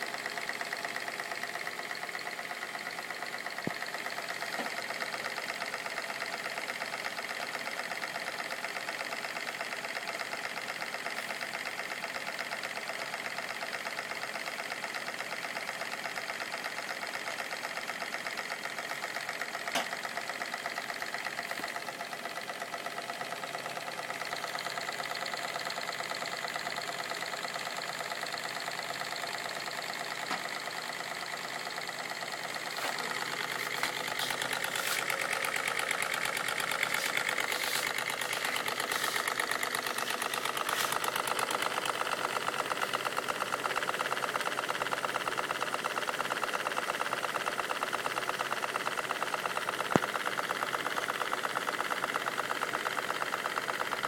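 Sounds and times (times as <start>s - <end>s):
steam engine beating: 32.6s - 43.0s.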